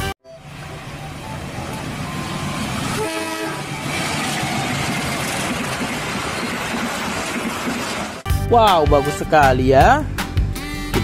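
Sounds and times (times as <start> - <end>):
train running: 0.0 - 8.3
train horn blast: 2.2 - 4.8.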